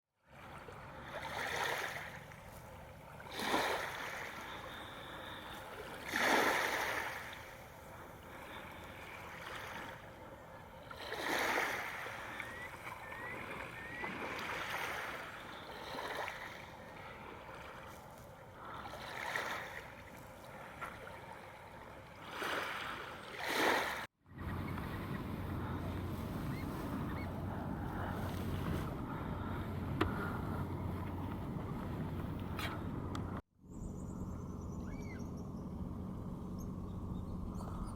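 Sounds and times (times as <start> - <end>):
water swishing and splashing: 0.2 - 33.4
rising bird chirps: 12.1 - 14.2, 26.4 - 27.4, 33.7 - 35.8.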